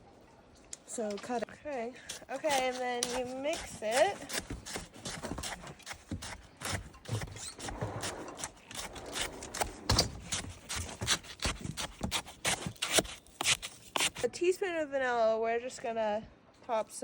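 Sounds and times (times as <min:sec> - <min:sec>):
utensil scraping snow in bowl: 0:02.0 - 0:14.3.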